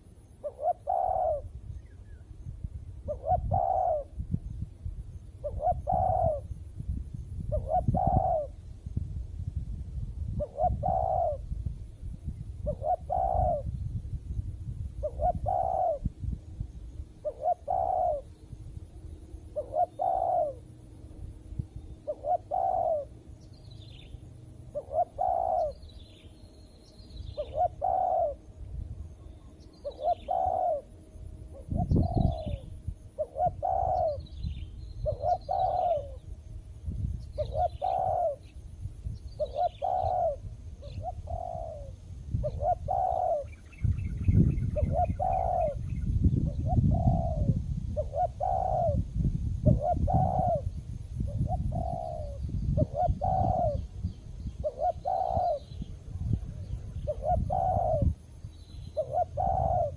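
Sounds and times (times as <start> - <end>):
dove cooing: 0.0 - 2.0, 3.0 - 4.3, 5.4 - 6.5, 7.5 - 8.6, 10.3 - 11.5, 12.6 - 13.8, 15.0 - 16.2, 17.2 - 18.4, 19.5 - 20.8, 22.0 - 23.2, 24.0 - 26.3, 27.3 - 28.5, 29.1 - 36.3, 37.4 - 38.5, 39.4 - 49.0, 49.6 - 59.9.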